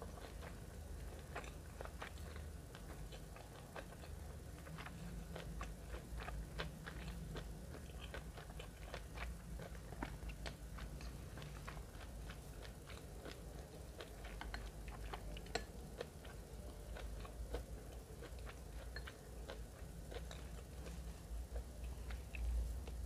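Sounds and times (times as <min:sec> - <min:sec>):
chewing food clicks: 0:01.2 - 0:23.0.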